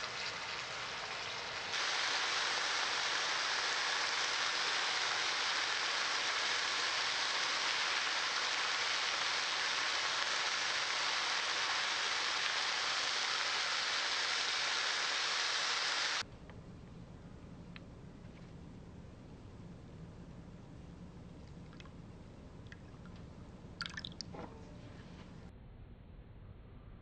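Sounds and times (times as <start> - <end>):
chicken wings sizzling in a pan: 0.0 - 16.2.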